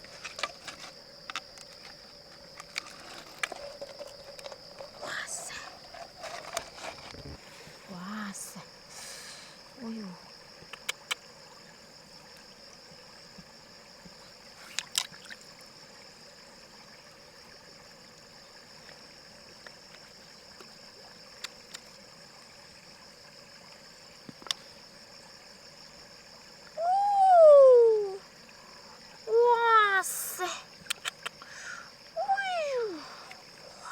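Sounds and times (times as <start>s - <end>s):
person calling out: 26.8s - 28.2s, 29.3s - 30.6s, 32.2s - 33.1s.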